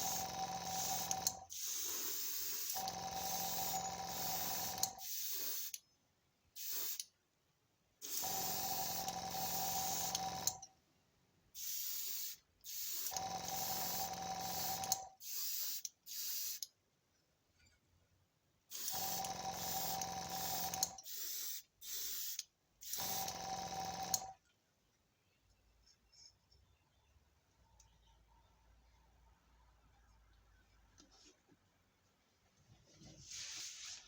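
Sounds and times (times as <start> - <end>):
spray paint hissing from can: 0.8 - 2.8, 4.2 - 5.8, 6.6 - 7.0, 11.6 - 13.1, 14.6 - 16.6, 18.7 - 23.1.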